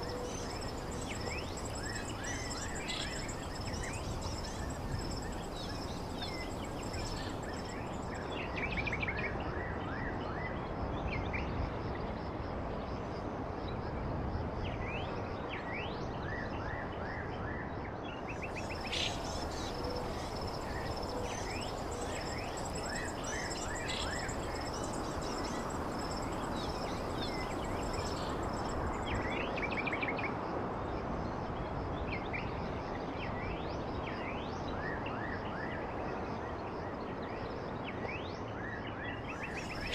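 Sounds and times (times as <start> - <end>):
birds chirping: 0.0 - 8.2, 18.6 - 29.2
background hiss: 0.0 - 8.4, 18.4 - 29.5, 39.4 - 39.9.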